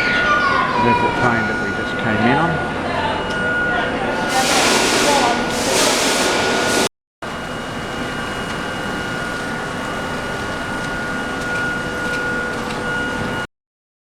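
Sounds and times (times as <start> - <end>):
mechanical hum and hiss: 4.1 - 13.4.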